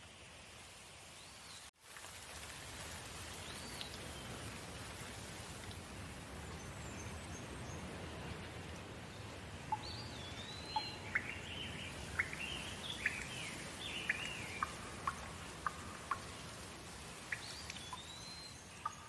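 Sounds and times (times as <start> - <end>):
steady rain: 0.0 - 19.0
bird singing: 9.7 - 16.4, 17.3 - 19.0.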